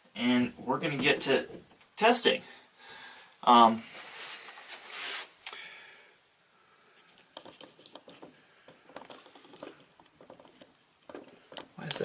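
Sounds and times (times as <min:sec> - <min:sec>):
rustle of handling: 0:03.8 - 0:05.4.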